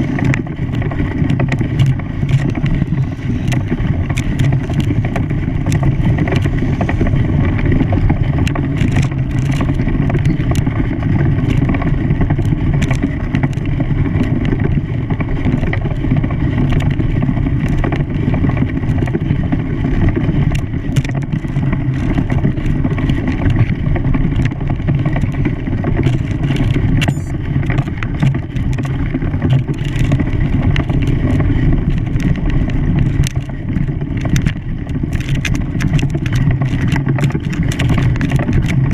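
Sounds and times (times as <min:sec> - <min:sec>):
engine rumbling: 0:00.0 - 0:38.9.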